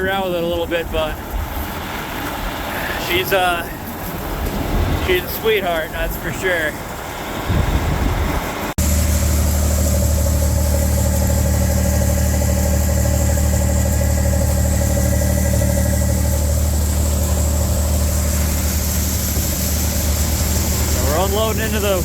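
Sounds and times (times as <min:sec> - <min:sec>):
combine harvester running: 0:00.0 - 0:22.0.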